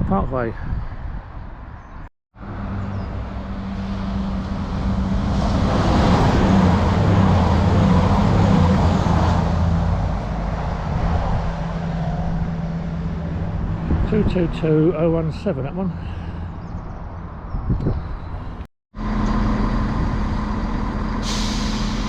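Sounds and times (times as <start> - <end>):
diesel engine hum: 2.4 - 22.0
train wheels rushing on rails: 3.7 - 9.8.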